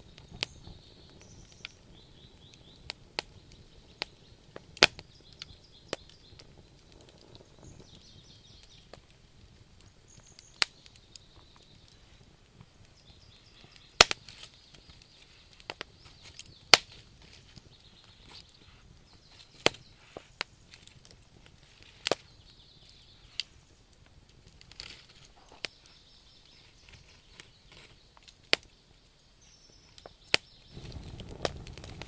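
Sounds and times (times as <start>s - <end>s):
campfire crackling and popping: 0.0s - 32.0s
faint high chirping: 0.2s - 9.0s, 12.8s - 16.7s.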